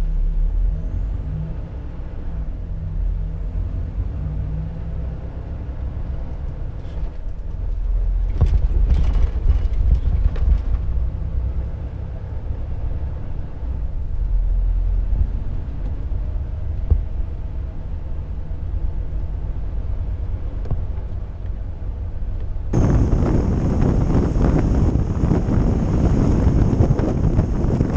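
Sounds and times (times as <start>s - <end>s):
road noise: 0.0s - 27.9s
truck diesel engine rumble: 0.0s - 27.9s
loud rushing noise: 22.8s - 27.9s.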